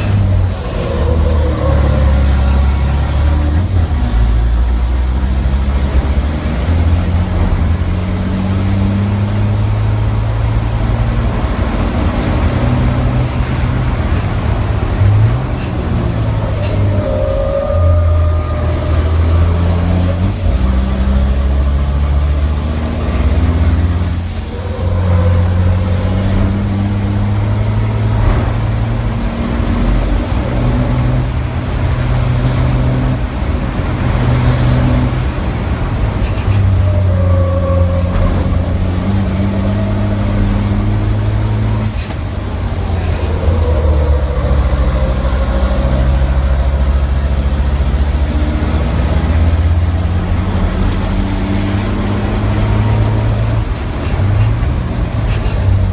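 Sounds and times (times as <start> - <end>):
diesel truck engine under load: 0.0 - 55.9
turbo whistle: 13.4 - 22.4, 31.5 - 49.5.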